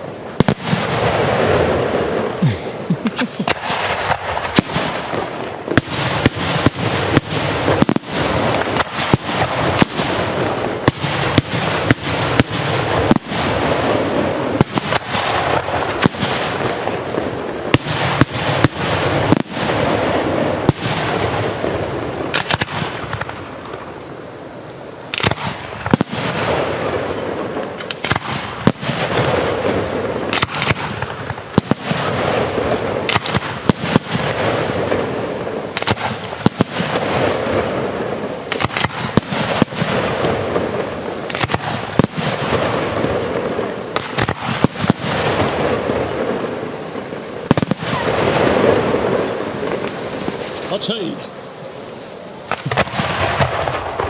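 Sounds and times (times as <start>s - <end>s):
firework shells bursting: 0.0s - 54.0s
noisy rush: 31.0s - 54.0s.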